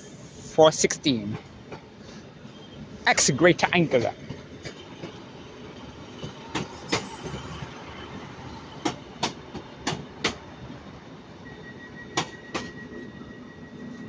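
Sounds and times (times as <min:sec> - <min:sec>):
steady high tone: 0:06.7 - 0:08.5.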